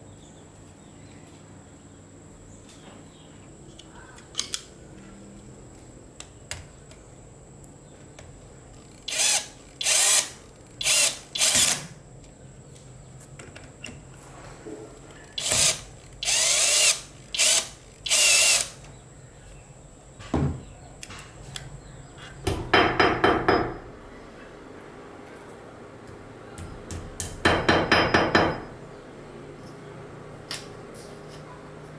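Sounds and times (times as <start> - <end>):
electric drill running: 8.8 - 11.9, 15.3 - 18.8.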